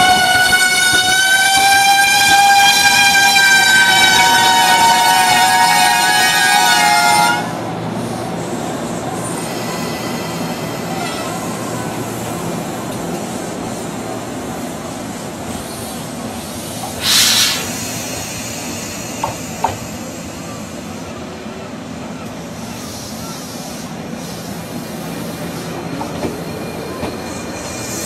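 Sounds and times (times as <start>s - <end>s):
train horn note: 0.0s - 7.6s
electric train running past: 0.0s - 28.0s
short hiss: 16.8s - 20.0s.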